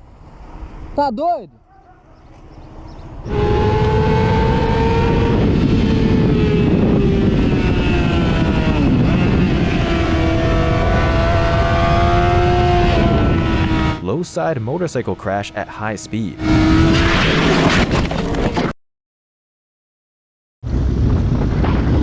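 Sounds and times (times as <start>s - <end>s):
motorcycle engine at high revs: 2.9s - 14.0s
wind noise: 3.3s - 13.6s, 20.7s - 22.0s.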